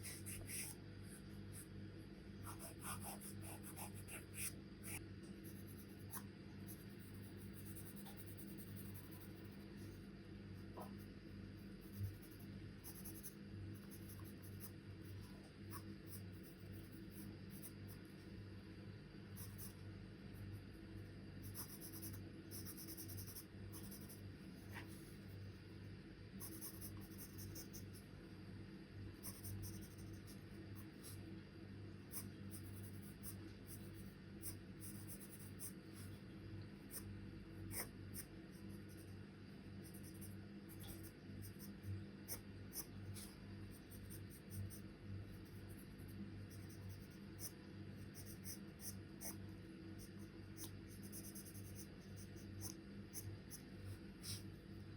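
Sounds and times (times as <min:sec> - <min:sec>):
charcoal scratching on paper: 0:00.0 - 0:01.7, 0:02.4 - 0:10.0, 0:37.7 - 0:39.2, 0:39.8 - 0:49.4, 0:50.0 - 0:54.5
steady low hum: 0:00.0 - 0:54.9.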